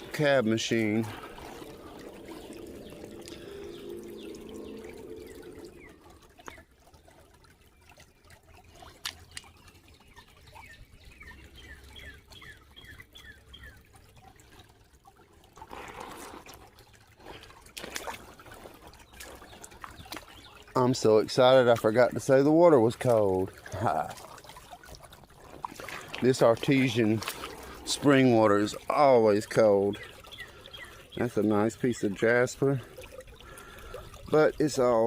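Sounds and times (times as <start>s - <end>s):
creek water trickling: 0.0s - 35.0s
water splashing: 0.0s - 35.0s.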